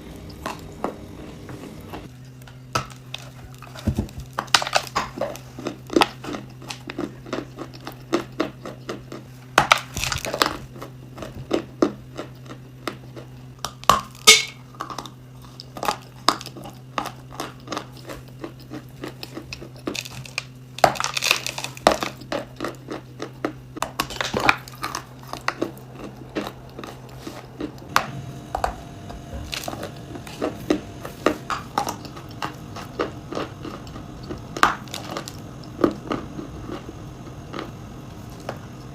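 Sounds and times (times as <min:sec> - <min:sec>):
crunchy chewing: 0:00.0 - 0:38.9
steady low hum: 0:00.0 - 0:38.9.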